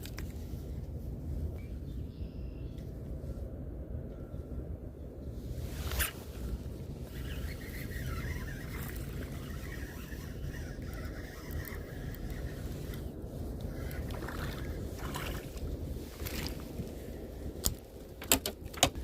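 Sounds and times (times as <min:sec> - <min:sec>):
water around a kayak: 0:00.0 - 0:01.5, 0:05.3 - 0:19.0
wind: 0:00.0 - 0:19.0.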